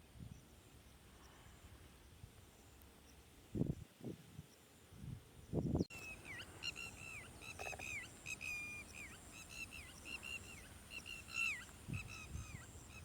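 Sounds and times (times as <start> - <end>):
small bird chirping: 5.5 - 13.0.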